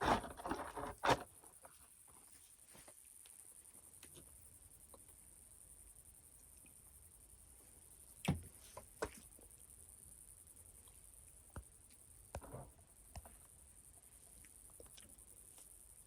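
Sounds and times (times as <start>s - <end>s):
sharp clicks and crunches: 0.0s - 1.8s.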